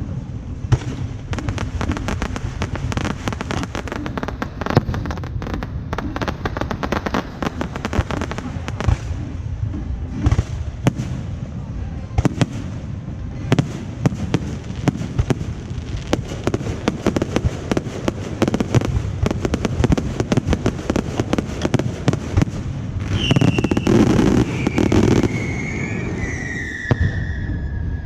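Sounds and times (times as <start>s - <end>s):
loud firework burst: 0.0s - 28.0s
firecrackers crackling pops: 0.6s - 27.7s
high wavering firework whistles: 23.0s - 28.0s.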